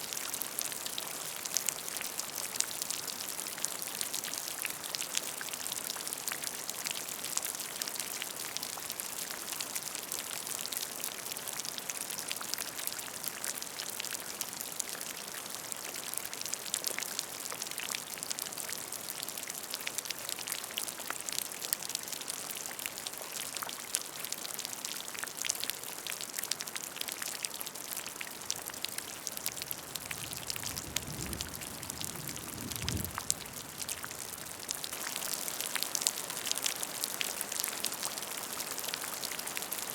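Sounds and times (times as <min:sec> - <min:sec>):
rain splashing on a puddle: 0:00.0 - 0:39.9.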